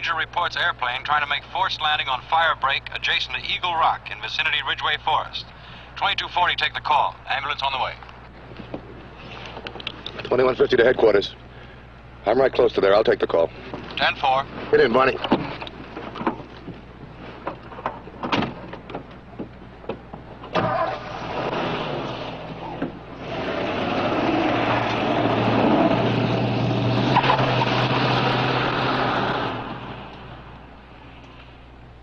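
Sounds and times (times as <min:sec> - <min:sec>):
road noise: 0:00.0 - 0:32.0
car engine starting and pulling away: 0:12.4 - 0:31.3.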